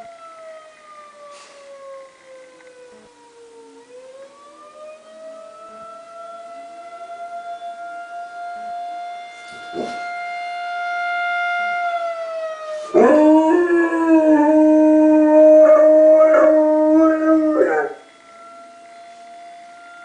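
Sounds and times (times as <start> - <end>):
warning siren: 0.0 - 20.0
dog howling: 12.9 - 18.0.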